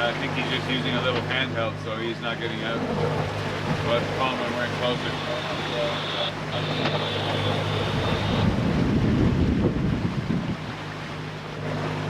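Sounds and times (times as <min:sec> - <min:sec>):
boat engine humming: 0:00.0 - 0:12.0
water rushing past hull: 0:00.0 - 0:12.0
faint high whine: 0:04.4 - 0:08.5
wind buffeting microphone: 0:06.7 - 0:11.0.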